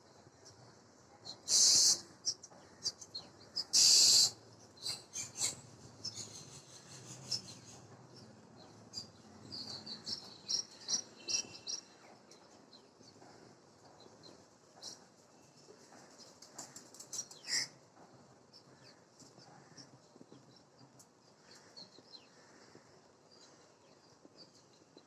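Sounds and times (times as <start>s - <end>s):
high bird chirps and twittering: 1.3s - 12.8s
harsh rasping bird calls: 1.4s - 7.9s, 16.7s - 17.8s.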